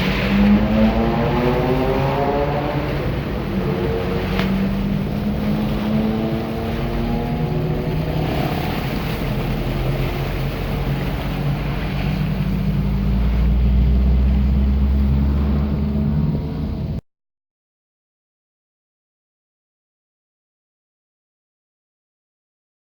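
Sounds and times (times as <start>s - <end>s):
continuous rushing noise: 0.0s - 17.0s
deep loud rumble: 0.0s - 17.0s
vehicle engine running: 0.0s - 17.0s.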